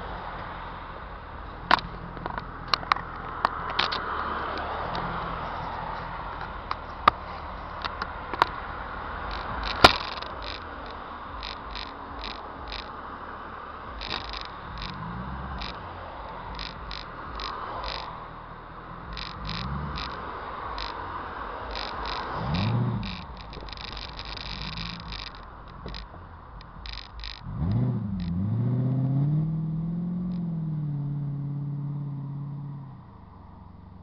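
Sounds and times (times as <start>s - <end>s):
car exhaust while driving: 0.0s - 34.0s
exhaust cracks: 0.0s - 34.0s.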